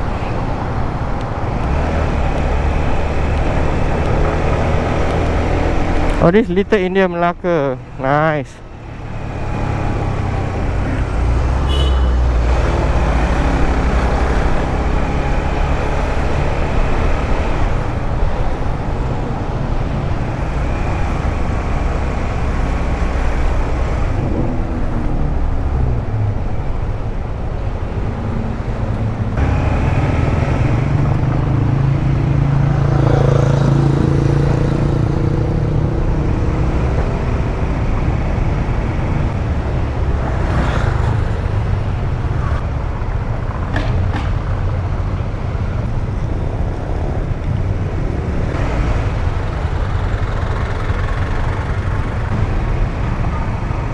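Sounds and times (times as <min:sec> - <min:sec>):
road and traffic noise: 0:00.0 - 0:53.9
motorcycle engine running: 0:47.3 - 0:53.9.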